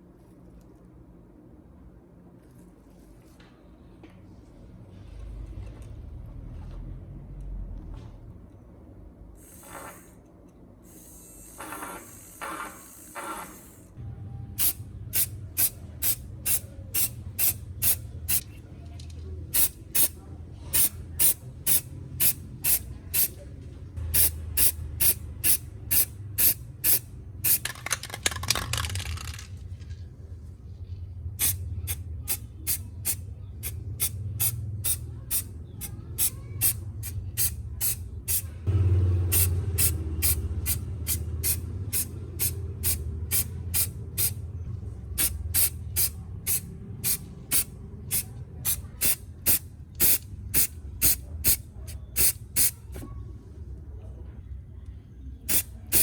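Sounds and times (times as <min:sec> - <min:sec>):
spray hissing bursts: 0:09.4 - 0:10.2, 0:10.9 - 0:13.9, 0:19.5 - 0:23.3, 0:24.1 - 0:27.6, 0:31.4 - 0:44.4, 0:45.2 - 0:51.6, 0:55.5 - 0:56.0.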